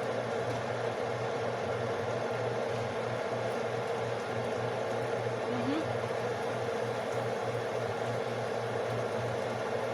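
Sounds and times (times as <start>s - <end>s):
electric fan humming and whirring: 2.6s - 9.9s.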